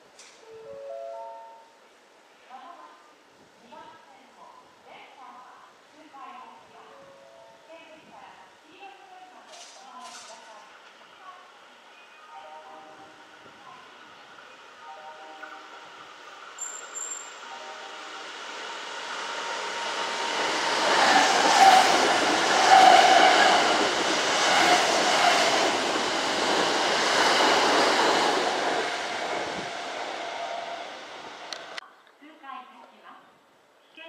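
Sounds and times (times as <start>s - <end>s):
electric train passing on track: 10.4s - 31.8s.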